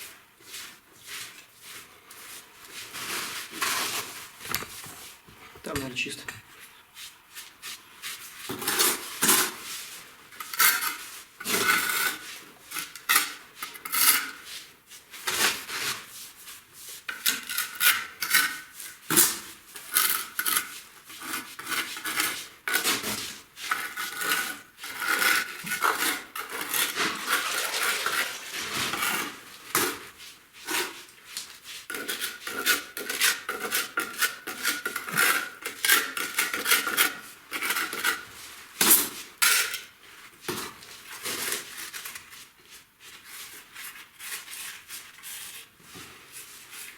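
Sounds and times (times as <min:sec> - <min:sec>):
tools scraping on brick: 0:10.3 - 0:14.4, 0:17.1 - 0:31.0, 0:31.9 - 0:39.8.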